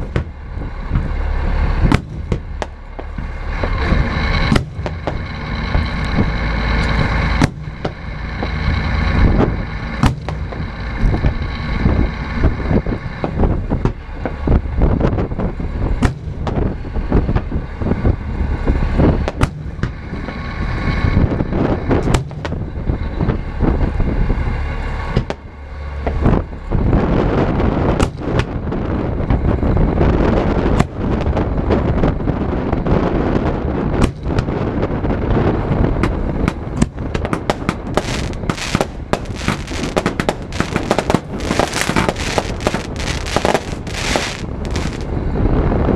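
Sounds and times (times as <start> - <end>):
fireworks exploding: 0.0 - 1.2, 1.8 - 12.0, 12.6 - 17.6, 21.9 - 23.4, 30.2 - 45.2
wind rumble on microphone: 0.0 - 45.9.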